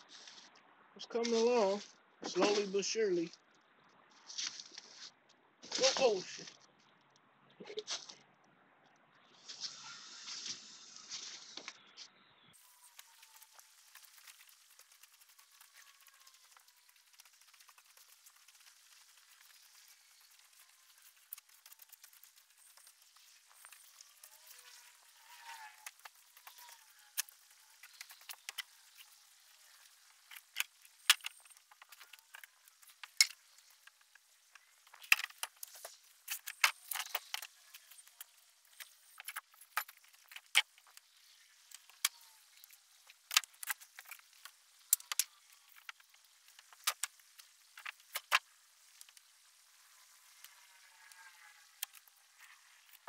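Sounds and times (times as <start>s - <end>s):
small hard pieces clinking: 12.6s - 41.1s.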